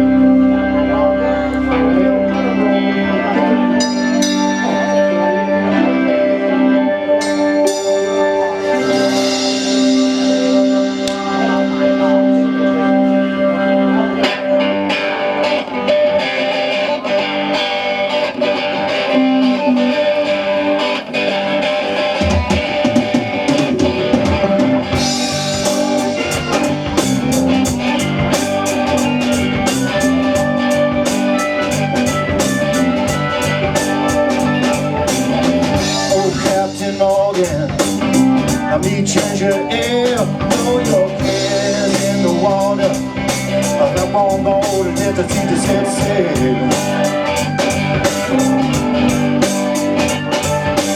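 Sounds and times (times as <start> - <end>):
guitars: 0.0 - 50.9
rock band playing: 0.0 - 50.9
drums and cymbals: 3.8 - 5.1, 7.2 - 12.1, 22.1 - 50.9.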